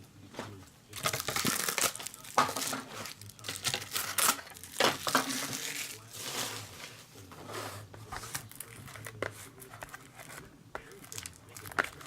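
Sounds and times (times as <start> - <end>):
packaging crinkling and rustling: 0.9 - 7.1, 8.2 - 12.0.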